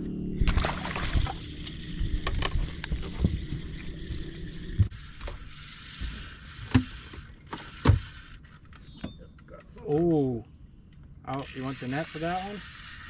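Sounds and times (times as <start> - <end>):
low boat motor hum: 0.0 - 8.1.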